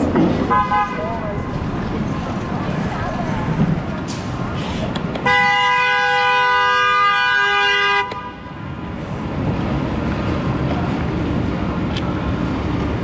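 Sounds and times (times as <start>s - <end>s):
street traffic noise: 0.0s - 13.0s
two-tone vehicle horn blast: 0.5s - 1.1s, 5.2s - 8.4s.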